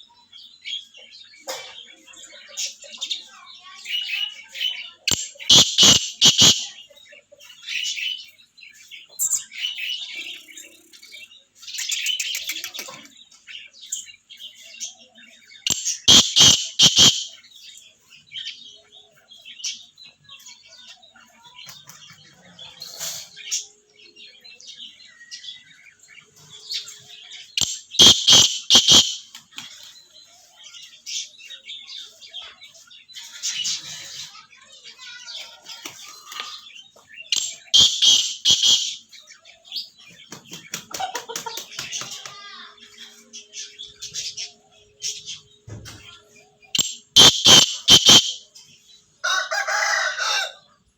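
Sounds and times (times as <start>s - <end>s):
budgerigars chirping: 4.0s - 8.3s, 9.0s - 21.1s, 22.7s - 29.4s, 36.6s - 40.3s, 46.5s - 50.5s
francolin harsh calls: 5.1s - 6.8s, 15.7s - 17.4s, 27.6s - 29.3s, 37.3s - 39.1s, 46.8s - 48.5s.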